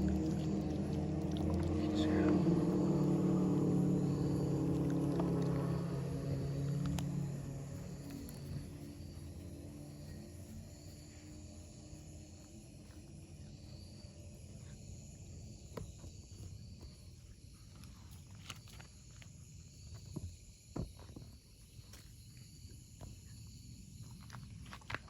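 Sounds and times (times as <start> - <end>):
low outdoor rumble: 0.0 - 18.2
insects chirping: 0.0 - 25.0.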